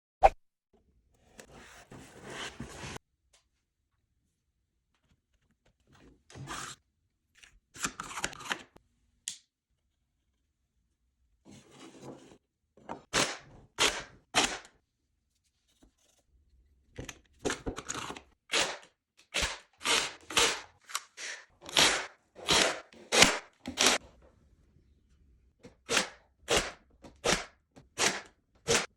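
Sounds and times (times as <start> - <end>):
nail gun snapping: 18.5 - 21.1, 21.7 - 24.0, 25.9 - 28.9.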